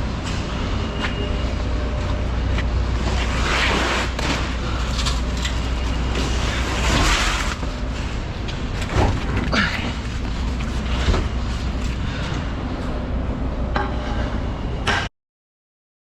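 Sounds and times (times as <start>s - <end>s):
truck engine rumbling: 4.2s - 13.7s.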